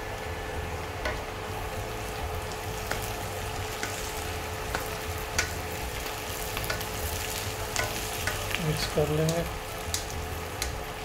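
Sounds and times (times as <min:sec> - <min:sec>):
chicken sizzling in a wok: 0:00.0 - 0:11.0
spatula tapping and scraping pan: 0:02.8 - 0:03.2, 0:03.8 - 0:05.6, 0:06.6 - 0:07.0, 0:07.7 - 0:08.5.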